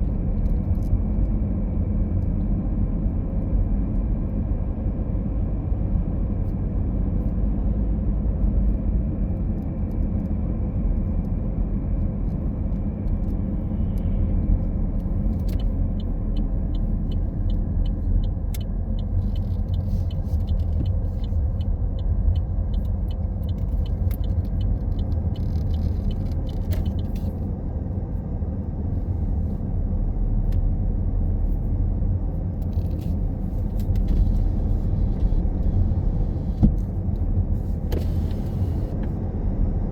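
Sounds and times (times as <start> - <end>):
car engine and road noise: 0.0 - 39.9
faint regular ticks: 15.5 - 27.3.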